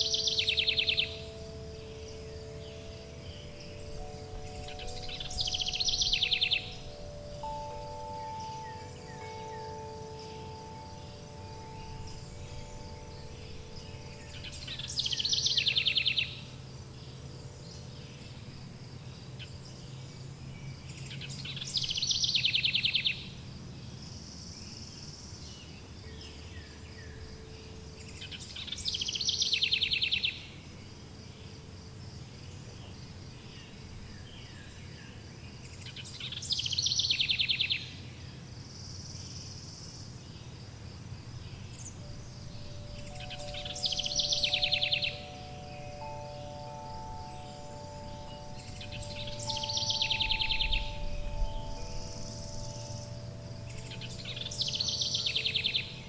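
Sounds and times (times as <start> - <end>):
insect-like chirring: 0.0 - 18.5, 41.3 - 56.0
wind chime tones: 0.0 - 18.8, 41.8 - 56.0
bird trilling song: 0.0 - 30.8, 32.5 - 40.6, 41.4 - 56.0.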